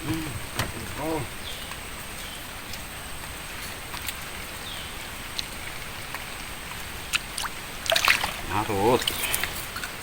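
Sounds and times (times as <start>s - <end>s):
steady outdoor hiss: 0.0s - 10.0s.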